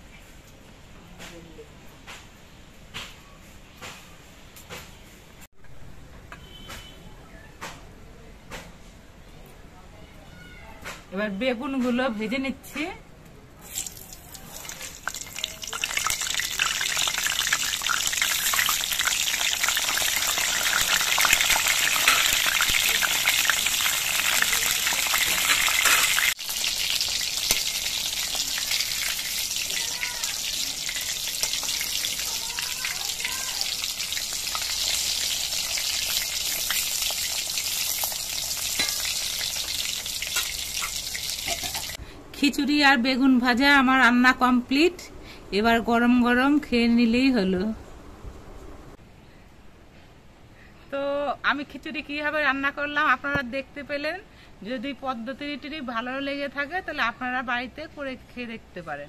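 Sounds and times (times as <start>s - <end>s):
eggplants sizzling in hot oil: 13.6s - 42.0s.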